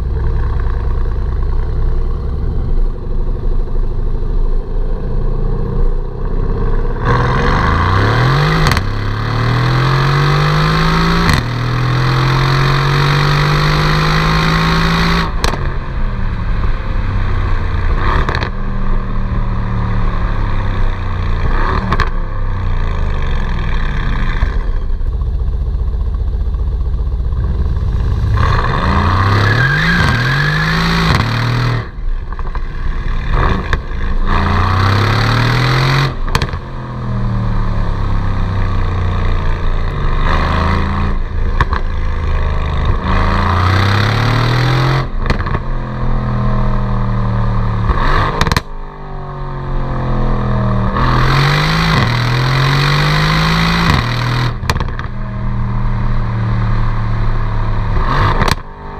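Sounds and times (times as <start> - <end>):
car engine accelerating: 0.0 - 58.9
exhaust pops and cracks: 36.2 - 36.6, 45.2 - 45.7, 47.9 - 48.7, 53.9 - 55.1, 58.3 - 58.7.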